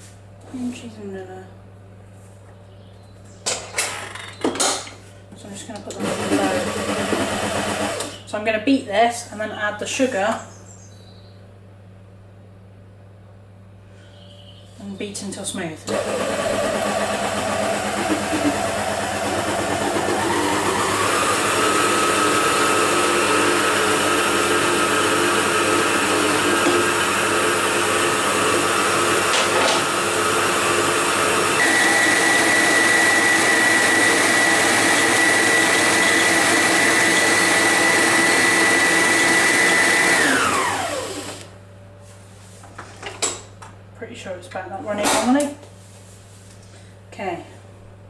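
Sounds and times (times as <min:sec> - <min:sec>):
electric mixer motor whine: 0:06.0 - 0:08.2, 0:15.9 - 0:41.6.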